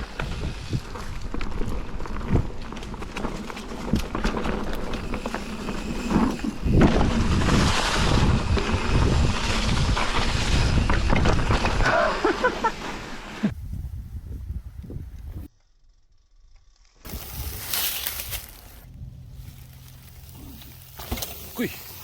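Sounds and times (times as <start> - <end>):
bike knocks and rattles: 0.0 - 12.0
bike tyre rumble: 0.0 - 22.0
wind on microphone: 13.5 - 15.5.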